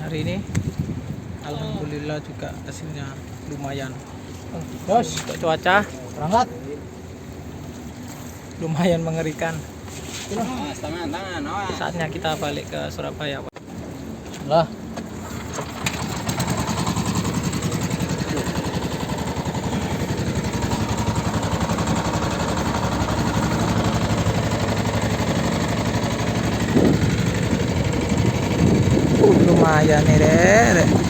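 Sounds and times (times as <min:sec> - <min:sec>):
boat engine chugging: 0:15.1 - 0:31.0.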